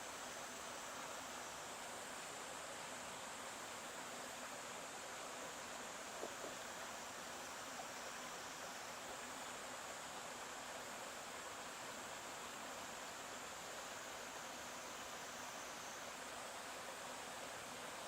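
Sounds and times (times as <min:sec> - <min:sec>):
stream water running: 0:00.0 - 0:18.0.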